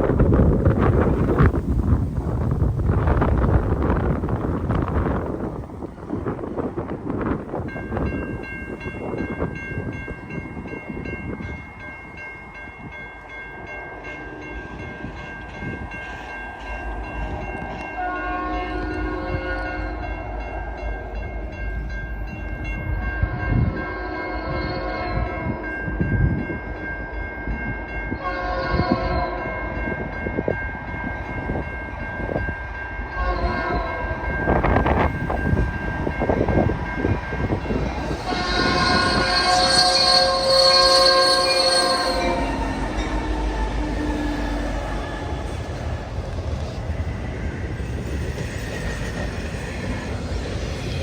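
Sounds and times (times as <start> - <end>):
train wheels on rails: 0.0 - 23.9, 28.8 - 51.0
train air horn blasts: 17.7 - 21.0, 23.1 - 26.0, 28.1 - 29.8, 33.1 - 35.1, 37.4 - 46.2.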